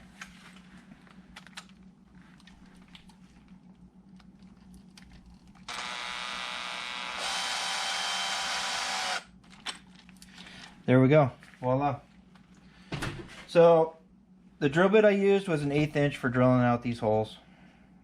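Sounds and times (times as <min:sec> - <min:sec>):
electric screwdriver whining: 0:05.7 - 0:09.3.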